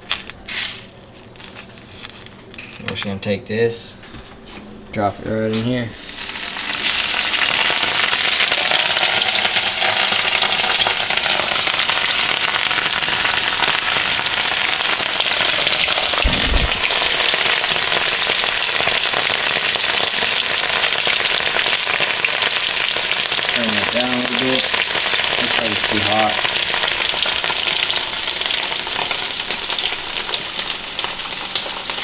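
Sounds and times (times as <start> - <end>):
fish frying in grease: 6.0 - 32.0
low thump: 16.2 - 17.1.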